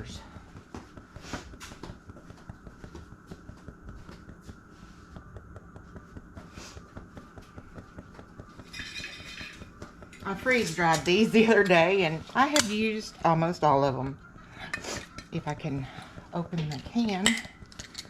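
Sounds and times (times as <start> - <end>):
kitchen objects clicking and tapping: 5.3 - 13.2, 14.5 - 18.0.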